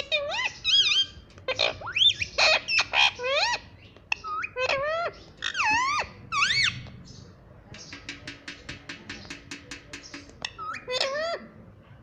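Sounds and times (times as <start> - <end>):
parrot squawking: 0.0 - 6.8, 10.4 - 11.4.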